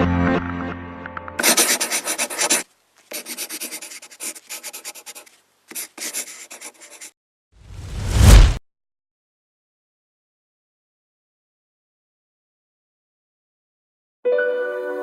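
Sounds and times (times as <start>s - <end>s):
fast scratching strokes: 1.4s - 7.2s.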